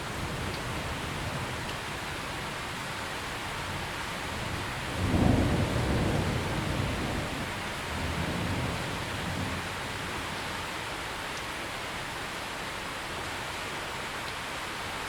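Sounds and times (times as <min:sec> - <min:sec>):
heavy rain: 0:00.0 - 0:15.0
thunder rumbling: 0:03.6 - 0:10.6.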